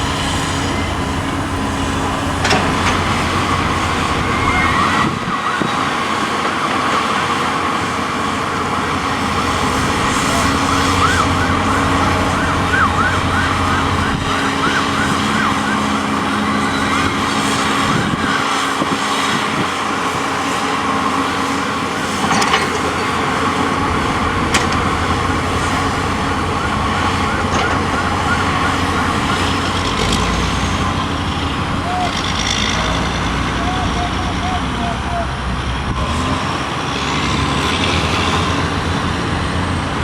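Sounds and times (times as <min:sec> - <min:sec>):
emergency siren yelping: 0:00.0 - 0:06.4, 0:08.3 - 0:20.0, 0:23.7 - 0:32.2
vehicle and machinery rumble: 0:00.0 - 0:40.0.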